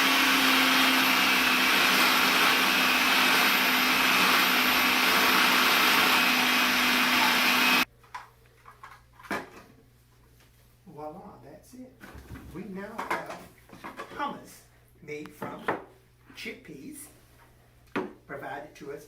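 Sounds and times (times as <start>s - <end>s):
food processor motor running: 0.0s - 7.9s.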